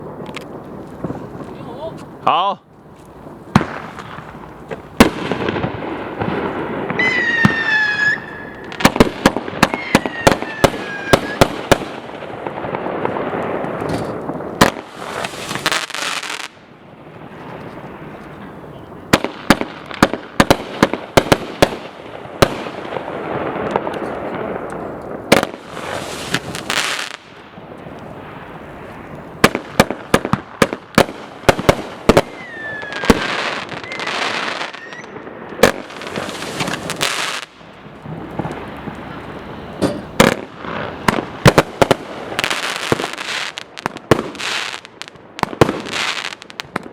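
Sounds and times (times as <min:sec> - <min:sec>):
fireworks bangs and crackles: 0:00.0 - 0:46.9
falling firework whistles: 0:06.4 - 0:11.8, 0:13.7 - 0:16.5, 0:25.6 - 0:27.2, 0:32.1 - 0:37.5.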